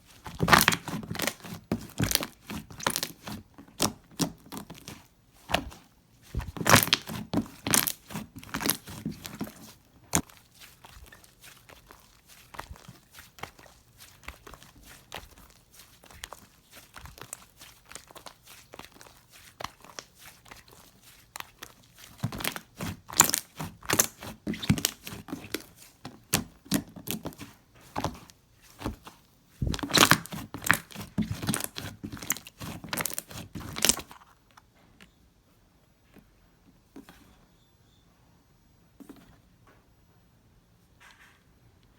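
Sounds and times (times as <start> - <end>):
slime squeezed crackling and popping: 0.3 - 5.8, 6.4 - 34.1.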